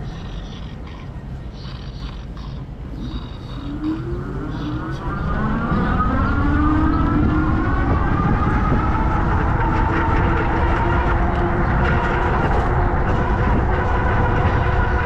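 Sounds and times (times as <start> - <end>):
road rumble: 0.0 - 15.0
wind: 0.0 - 15.0.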